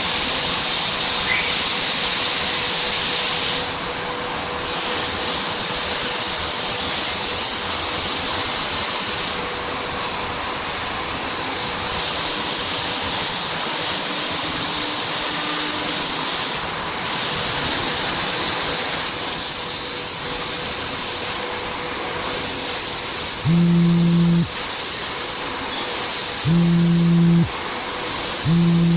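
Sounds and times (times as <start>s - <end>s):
machine whine: 23.4s - 24.6s, 26.4s - 27.5s, 28.4s - 28.9s.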